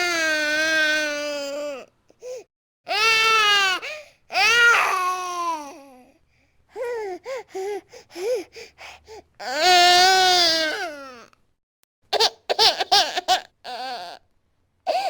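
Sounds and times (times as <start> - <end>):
baby crying: 0.0 - 6.0, 9.4 - 11.3, 12.2 - 14.2.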